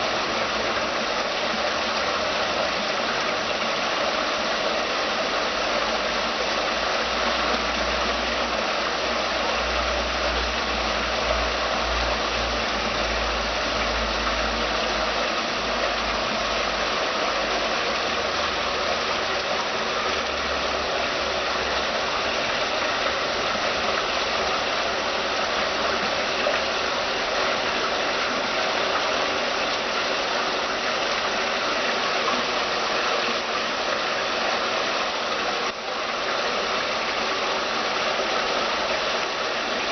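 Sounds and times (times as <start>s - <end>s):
fountain water splashing: 0.0s - 39.9s.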